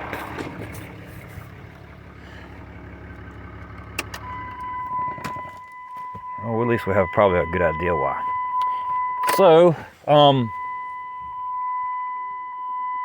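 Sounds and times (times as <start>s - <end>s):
diesel engine idling: 0.0s - 11.7s
steady electronic beep tone: 4.2s - 9.6s.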